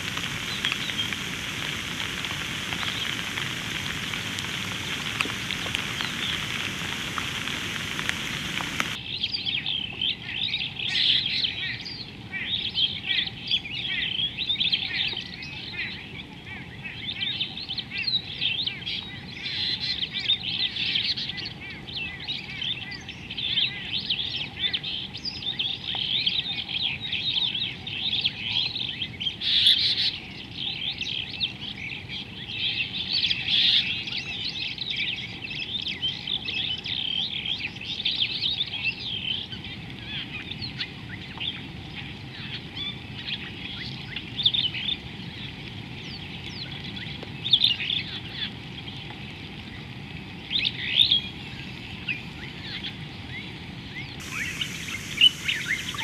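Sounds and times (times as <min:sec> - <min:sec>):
rain hissing: 0:00.0 - 0:09.0, 0:50.3 - 0:56.0
birds chirping in dense chorus: 0:00.0 - 0:49.8, 0:50.5 - 0:56.0.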